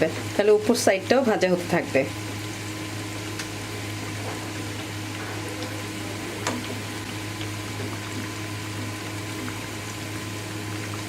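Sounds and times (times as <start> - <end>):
oil bubbling while deep-frying: 0.0 - 11.0.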